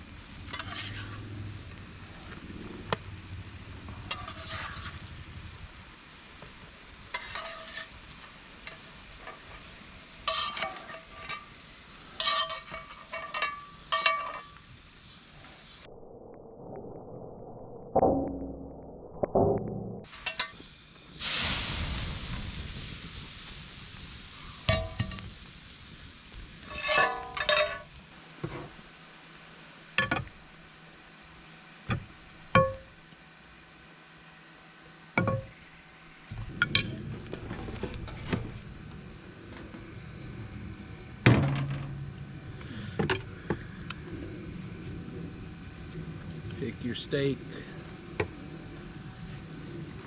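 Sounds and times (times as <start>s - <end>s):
steady hiss: 0.0s - 15.9s, 20.1s - 50.0s
insects chirring: 0.0s - 18.0s, 20.0s - 50.0s
metal utensils clinking: 26.7s - 27.9s.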